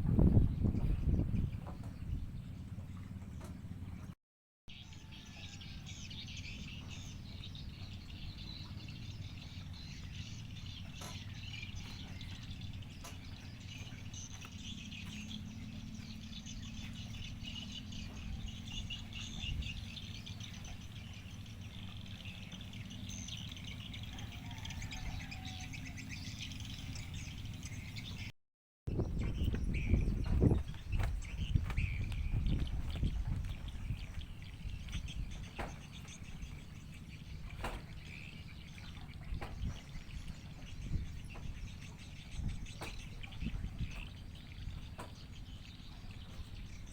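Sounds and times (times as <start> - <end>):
birds chirping and twittering: 0.0 - 4.1, 4.7 - 28.3, 28.9 - 46.9
steady low rumble: 28.9 - 45.0.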